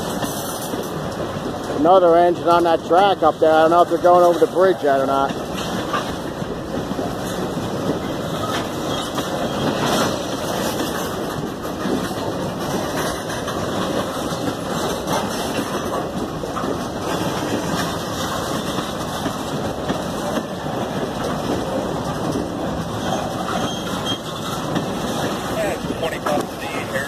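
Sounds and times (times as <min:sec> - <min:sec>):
freight train rumbling past: 0:00.0 - 0:27.0
steel wheels clattering on rails: 0:00.0 - 0:27.0.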